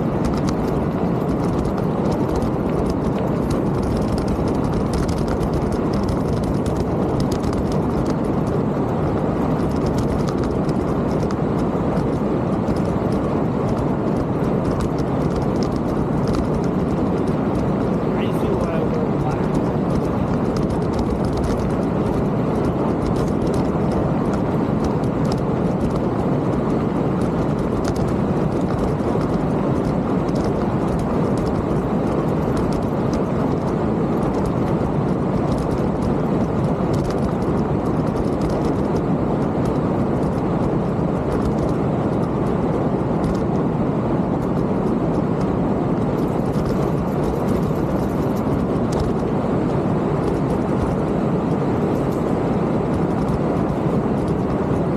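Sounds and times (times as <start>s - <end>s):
bike tyre rumble: 0.0s - 54.9s
wind rush: 0.0s - 54.9s
bike rattle ticks: 0.2s - 42.5s, 46.0s - 54.8s.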